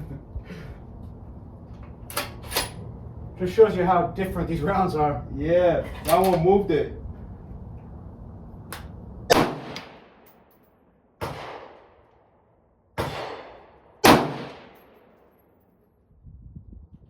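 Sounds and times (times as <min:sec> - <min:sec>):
rifle shots with echo: 0:09.3 - 0:10.2, 0:11.2 - 0:12.0, 0:13.0 - 0:15.1.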